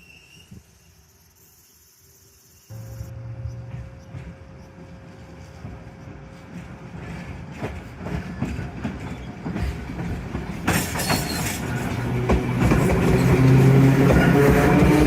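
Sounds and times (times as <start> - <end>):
tram wheels clicking over rail joints: 3.1 - 15.0.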